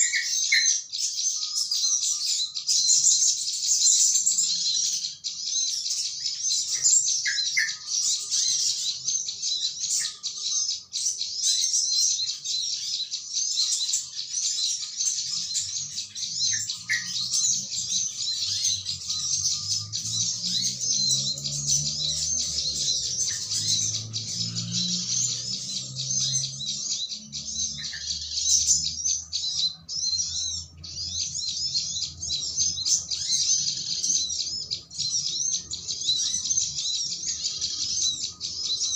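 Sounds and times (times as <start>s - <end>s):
flock of small birds chattering: 0.0s - 38.9s.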